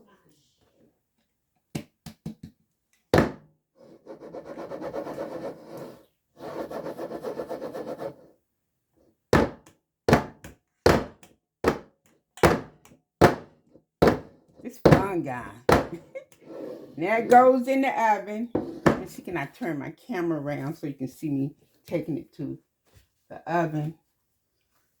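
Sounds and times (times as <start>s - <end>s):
cake pan knocking on countertop: 3.2s - 3.4s, 9.4s - 16.0s.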